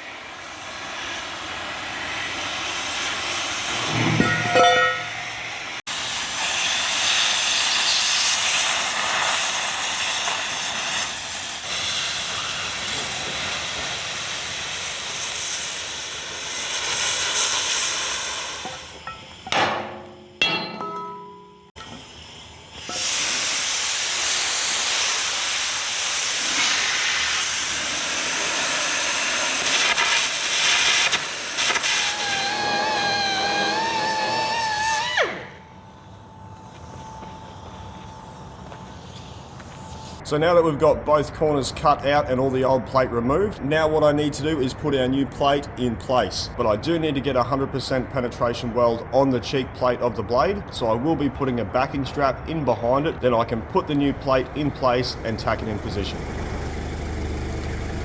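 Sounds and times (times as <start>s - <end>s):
compressed air and arc hissing: 0.0s - 4.1s, 5.1s - 19.5s, 21.8s - 35.6s.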